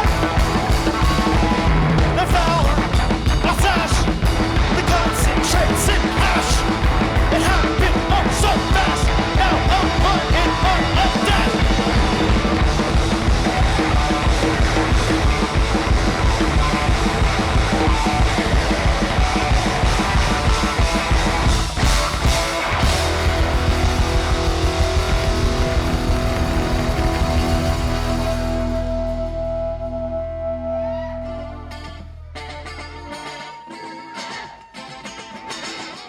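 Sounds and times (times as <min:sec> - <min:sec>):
shouted vocals: 0:00.0 - 0:12.6
guitar: 0:00.0 - 0:36.0
punk rock band playing: 0:00.0 - 0:36.0.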